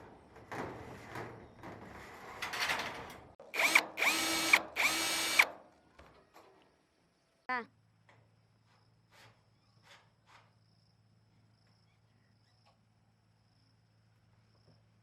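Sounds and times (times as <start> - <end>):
power drill bursts: 3.5 - 5.5.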